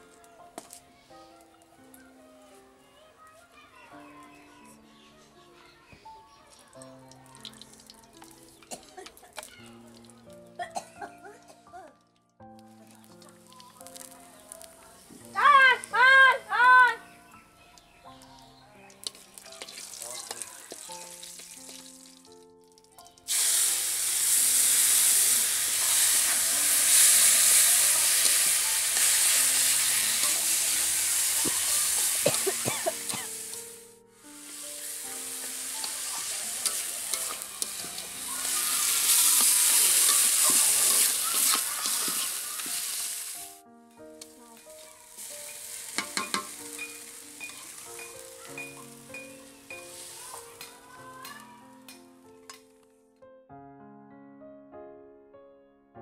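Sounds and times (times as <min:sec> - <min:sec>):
soft plucked background music: 0:00.0 - 0:53.4
food frying in hot oil: 0:12.9 - 0:14.6, 0:19.0 - 0:22.4, 0:23.0 - 0:33.8, 0:34.4 - 0:43.5, 0:44.6 - 0:50.6
ladle clinking on a pan: 0:45.4 - 0:49.4.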